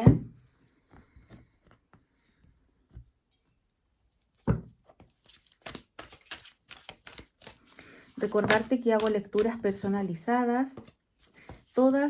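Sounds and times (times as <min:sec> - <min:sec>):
cards being shuffled: 0:04.9 - 0:10.1.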